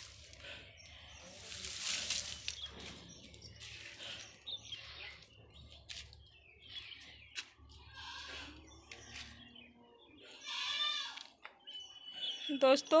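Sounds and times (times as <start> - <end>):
small birds chirping: 0.0 - 13.0
rustling: 1.2 - 4.0.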